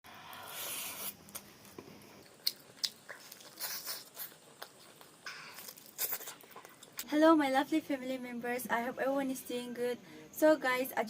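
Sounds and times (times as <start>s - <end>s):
biting and chewing: 0.6s - 7.1s.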